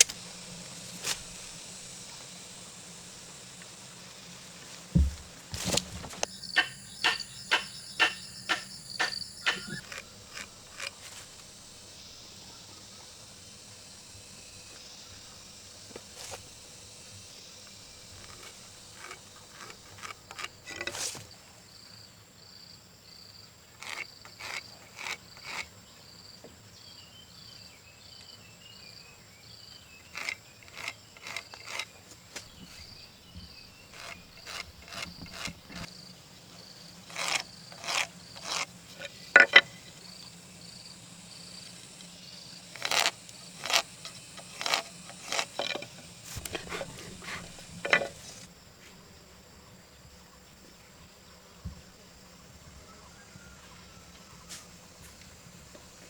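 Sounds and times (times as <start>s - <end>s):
insects buzzing and chirping: 0.0s - 56.0s
hand tool striking wooden post: 4.9s - 10.9s, 39.4s - 39.7s.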